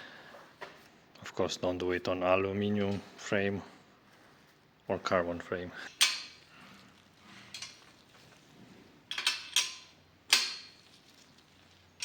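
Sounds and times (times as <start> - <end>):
metal clinks on bicycle frame: 7.3 - 8.3, 9.1 - 12.0.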